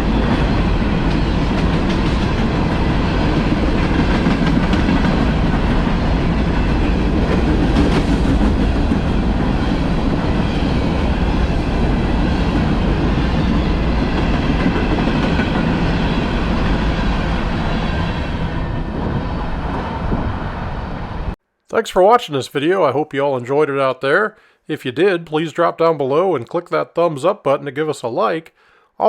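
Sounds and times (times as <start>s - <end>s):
steel wheels on rail: 0.0s - 21.4s.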